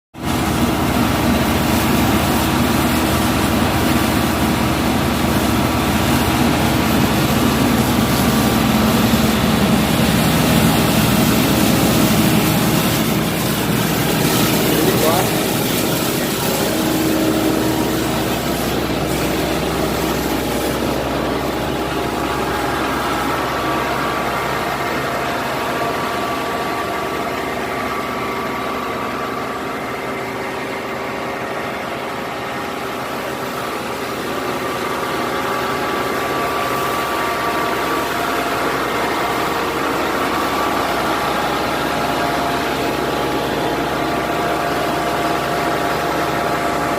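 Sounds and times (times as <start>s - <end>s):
excavator diesel engine running: 0.2s - 46.9s.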